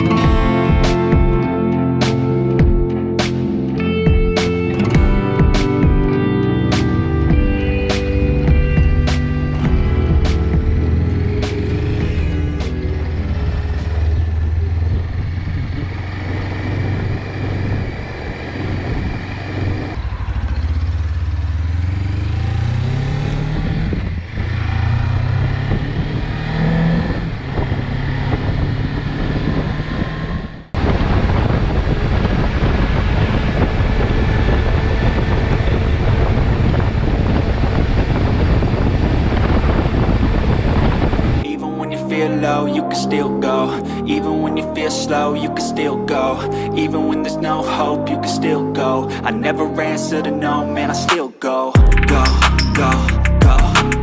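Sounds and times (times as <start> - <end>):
motorcycle engine accelerating: 0.0 - 41.4
steady rushing noise: 0.2 - 21.0.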